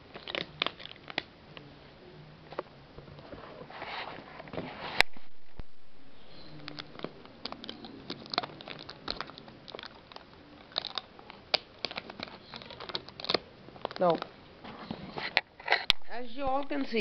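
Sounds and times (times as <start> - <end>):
plastic packet crinkling: 6.2 - 14.4
small clicks and rustles: 6.6 - 17.0.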